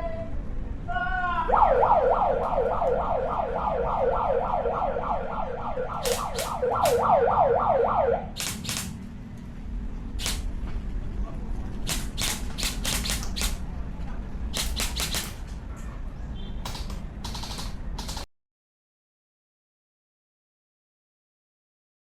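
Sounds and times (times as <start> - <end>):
electronic siren yelping: 1.4 - 8.4
sharp snaps: 5.9 - 7.1, 8.4 - 9.0, 10.2 - 10.5, 11.9 - 13.6, 14.6 - 15.4, 16.7 - 18.3.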